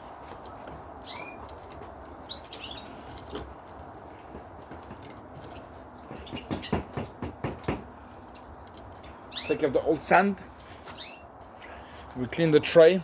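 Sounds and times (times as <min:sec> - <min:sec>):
canaries chirping: 0:01.0 - 0:01.5, 0:02.1 - 0:03.2, 0:06.0 - 0:07.6, 0:09.3 - 0:09.9, 0:10.9 - 0:11.4.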